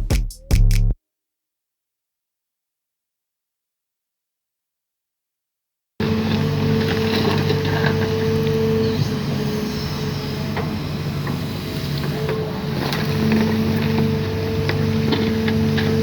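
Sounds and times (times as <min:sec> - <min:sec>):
excavator diesel engine droning: 0:06.0 - 0:16.0.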